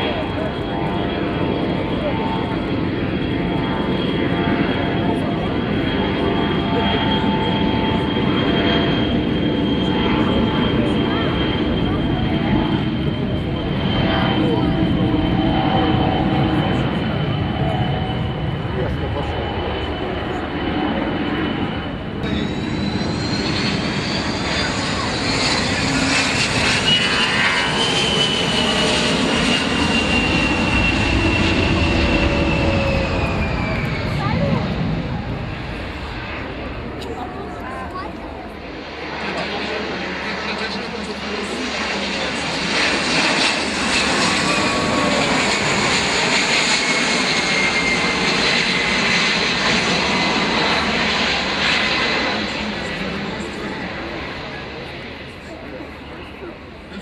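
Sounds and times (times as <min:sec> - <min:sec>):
aircraft engines running: 0:00.0 - 0:57.0.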